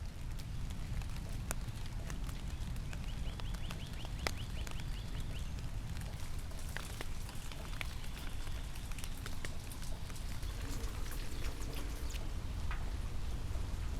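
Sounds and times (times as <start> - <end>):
raindrops pattering: 0.0 - 13.9.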